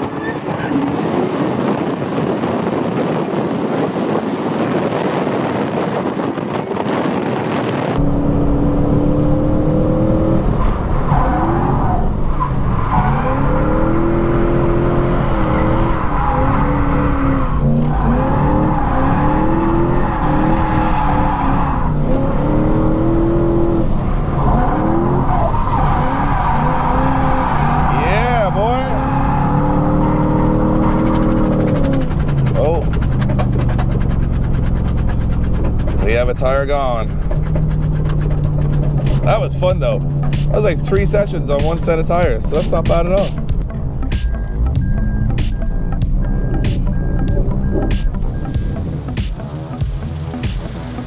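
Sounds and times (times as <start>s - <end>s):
tyre squeal: 0.0s - 0.9s, 10.2s - 22.6s
noisy rush: 0.0s - 51.0s
car engine revving hard: 8.0s - 39.4s.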